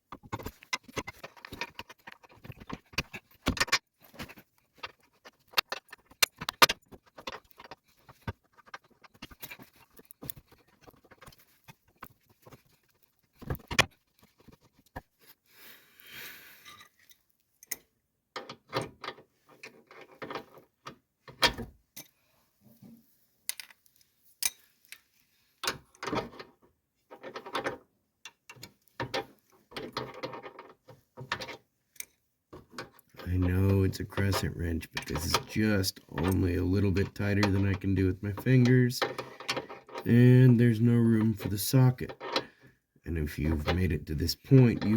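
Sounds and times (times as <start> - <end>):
tools rattling: 0.0 - 14.8, 25.6 - 42.6.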